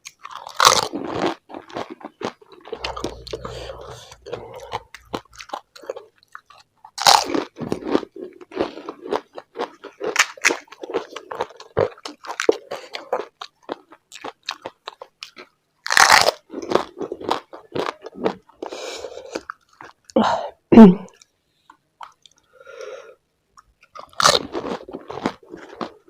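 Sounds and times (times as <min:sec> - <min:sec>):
crunching and chewing food: 0:00.0 - 0:20.2, 0:23.6 - 0:26.0.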